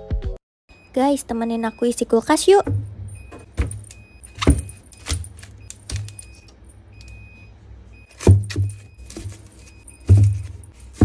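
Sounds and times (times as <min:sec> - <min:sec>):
packages knocking and rattling: 0:02.7 - 0:06.4, 0:08.1 - 0:11.0.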